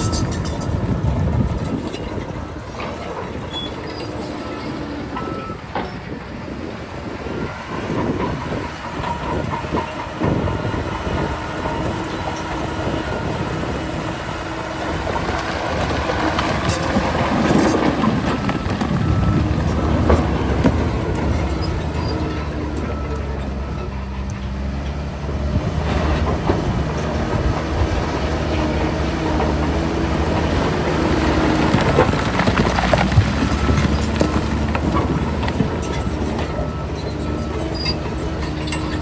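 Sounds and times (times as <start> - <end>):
metallic clanking: 0.0 - 4.5
heavy machinery running: 0.0 - 39.0.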